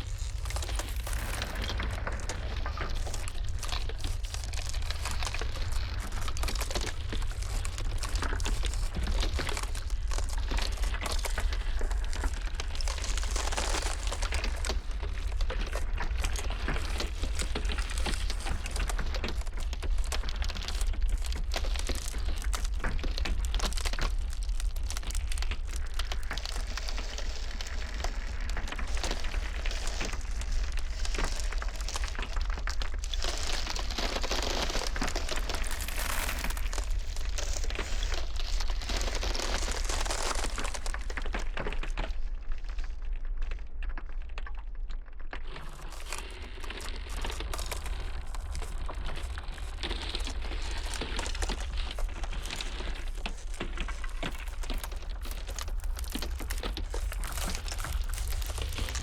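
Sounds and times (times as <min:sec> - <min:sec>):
blizzard wind rumbling: 0:00.0 - 0:18.7
ice cracking: 0:00.0 - 0:59.0.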